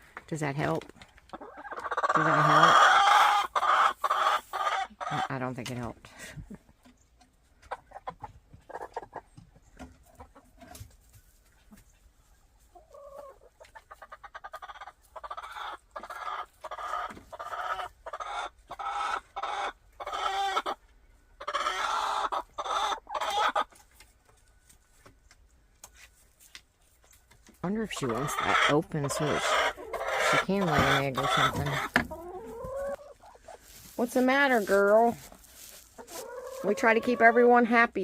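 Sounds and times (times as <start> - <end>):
hen complaining calls: 1.3 - 5.4, 27.6 - 37.7.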